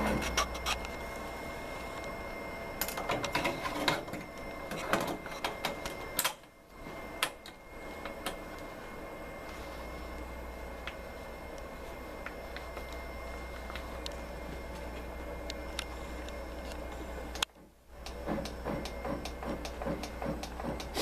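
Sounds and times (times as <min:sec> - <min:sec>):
faint high whine: 0:00.0 - 0:21.0
steady electrical hum: 0:00.0 - 0:21.0
hands clicking and knocking on machine: 0:18.1 - 0:21.0.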